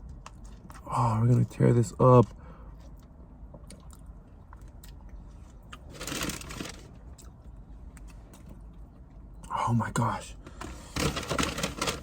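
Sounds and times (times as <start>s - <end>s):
sandwich wrapper rustling: 5.8s - 7.0s, 10.9s - 12.0s.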